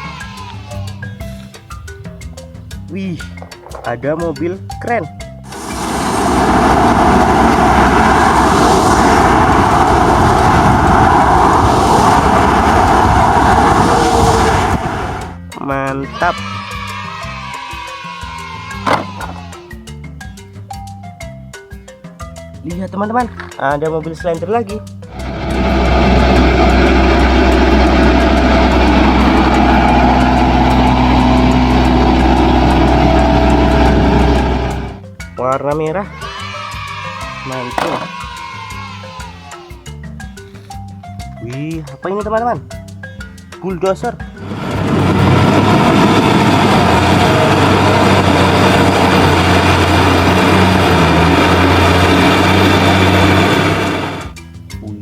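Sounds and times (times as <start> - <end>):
heavy vehicle engine running: 5.5 - 15.4, 25.1 - 35.0, 44.3 - 54.4.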